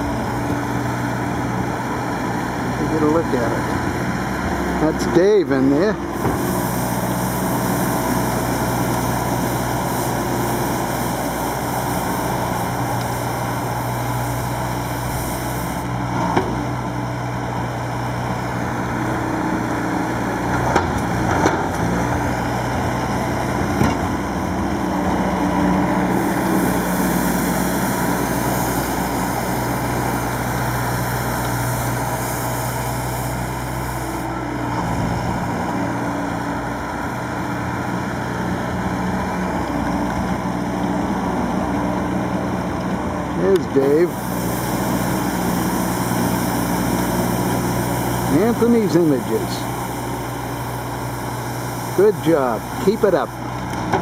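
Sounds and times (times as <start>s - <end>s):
loader engine running: 0.0s - 54.0s
sweeper brushing sand: 6.1s - 16.0s, 26.0s - 35.1s, 43.6s - 53.5s.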